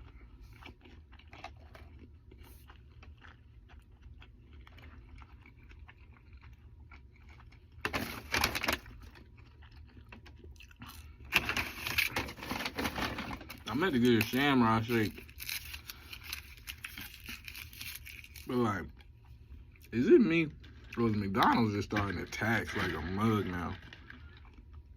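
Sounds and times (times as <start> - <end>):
person chewing food: 0.0 - 7.9, 8.6 - 12.2, 13.7 - 21.1, 23.7 - 24.9.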